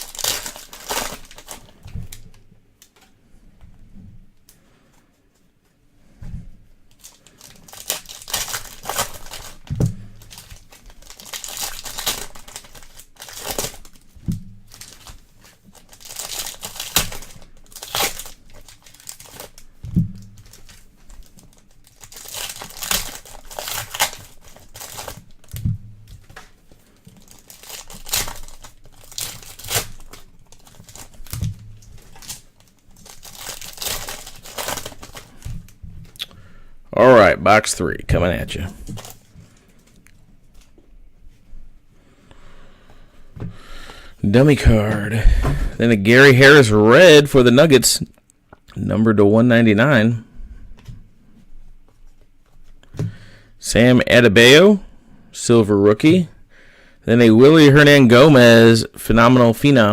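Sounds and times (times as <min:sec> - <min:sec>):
wrappers torn and crinkled: 0:00.0 - 0:03.0, 0:06.9 - 0:36.4, 0:38.5 - 0:40.7.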